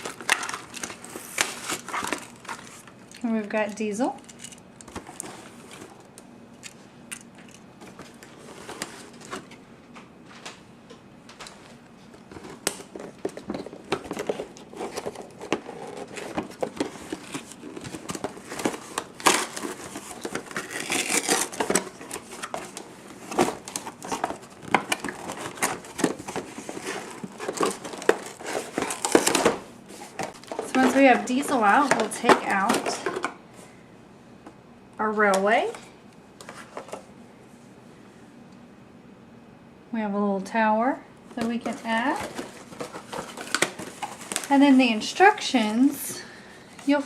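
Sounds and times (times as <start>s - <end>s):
plastic packaging crinkling: 0.0s - 6.1s, 12.2s - 33.3s, 41.4s - 45.5s.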